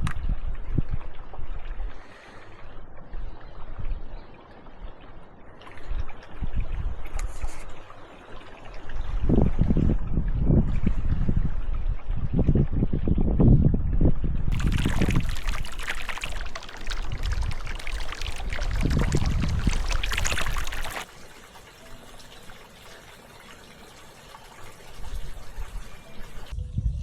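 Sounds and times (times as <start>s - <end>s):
wind rumble on microphone: 0.0s - 5.0s, 5.8s - 7.9s, 8.6s - 21.1s, 25.0s - 27.0s
faint water trickle: 0.1s - 26.5s
water pouring and splashing: 3.2s - 12.6s, 14.5s - 26.6s.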